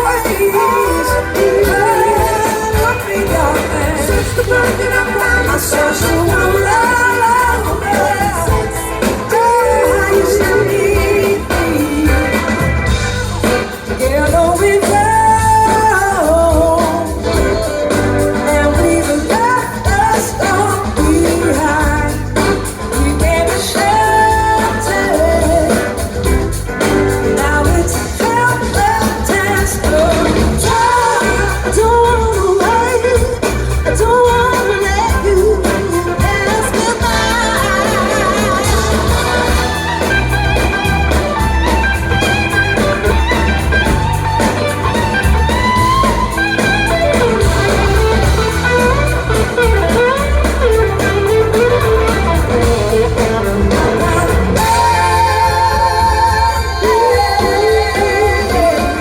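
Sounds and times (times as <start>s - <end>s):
bass line: 0.0s - 59.0s
electric guitar: 0.0s - 59.0s
person singing: 0.0s - 59.0s.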